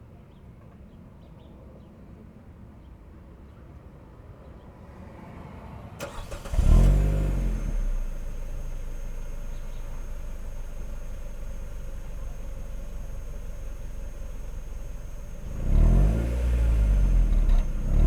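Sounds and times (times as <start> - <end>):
car engine idling: 6.0 - 18.0.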